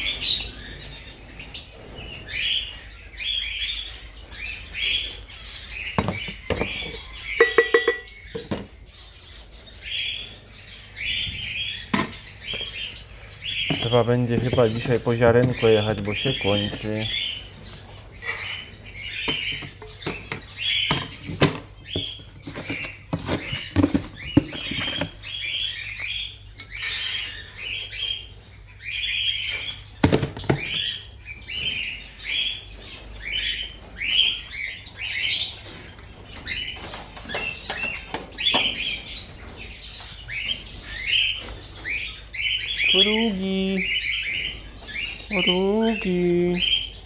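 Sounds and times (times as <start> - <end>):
parrots chirping: 0.0 - 47.0
rustling: 12.1 - 20.6.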